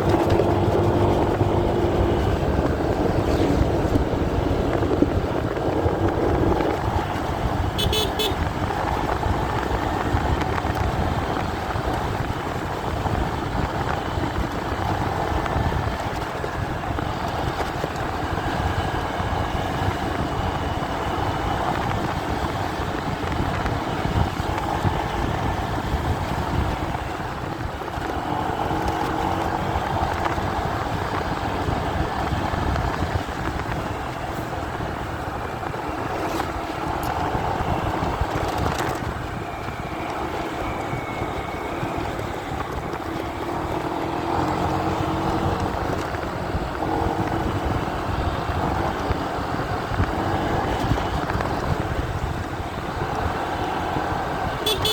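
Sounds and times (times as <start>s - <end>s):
wind and road rumble: 0.0s - 54.9s
faint motorcycle engine: 50.7s - 54.9s.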